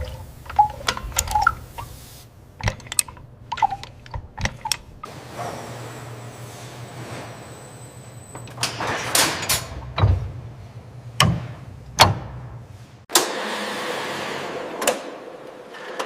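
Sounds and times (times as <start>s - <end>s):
sharp knocks and clanks: 2.6s - 5.8s.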